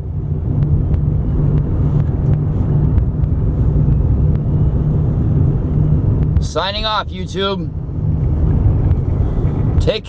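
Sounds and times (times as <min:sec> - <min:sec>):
car engine and road noise: 0:00.0 - 0:10.0.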